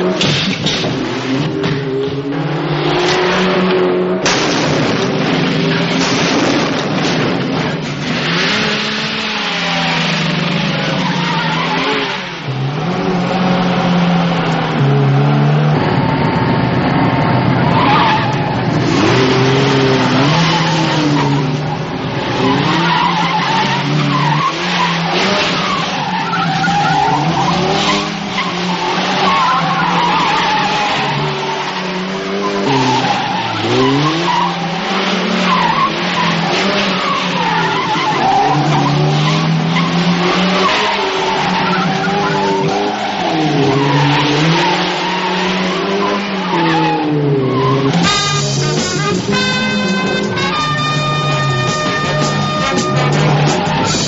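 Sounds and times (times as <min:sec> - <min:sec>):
car engines revving: 0:00.0 - 0:54.0
tyres squealing: 0:10.8 - 0:12.4, 0:17.8 - 0:54.0.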